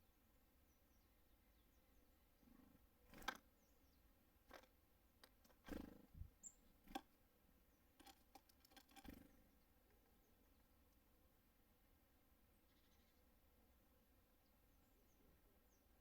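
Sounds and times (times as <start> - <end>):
birds tapping on feeder: 3.0 - 3.5, 4.4 - 7.2, 8.0 - 10.1.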